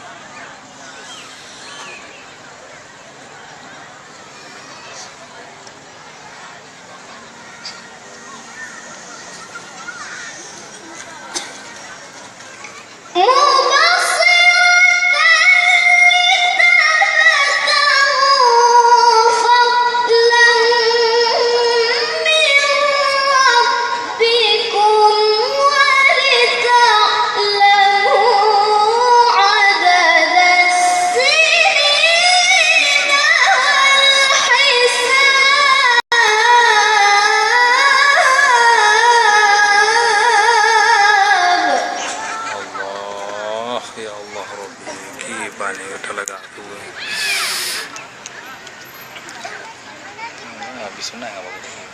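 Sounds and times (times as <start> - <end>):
child reciting melodically: 7.2 - 43.4.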